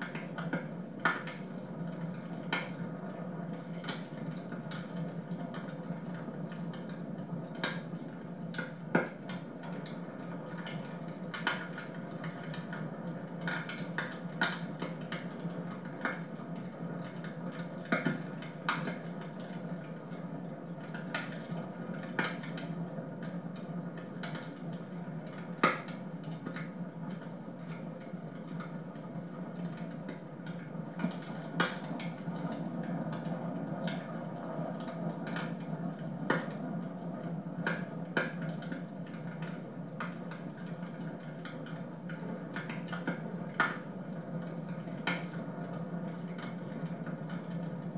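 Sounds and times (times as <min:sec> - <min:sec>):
low steady fire background: 0:00.0 - 0:47.9
wood fire crackling and popping: 0:00.0 - 0:47.9.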